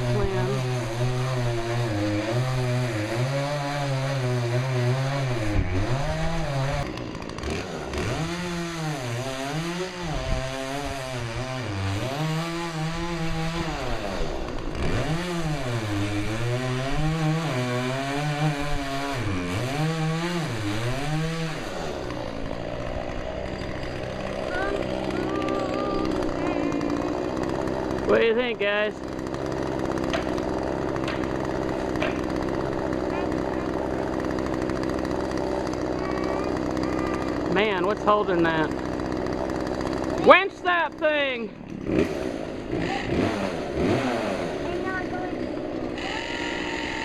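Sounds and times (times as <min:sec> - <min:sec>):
chainsaw cutting into tree: 0:00.0 - 0:47.0.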